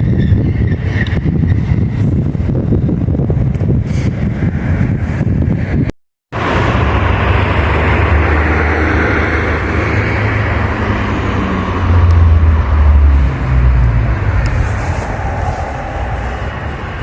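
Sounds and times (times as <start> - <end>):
train rumbling: 6.4 - 17.0.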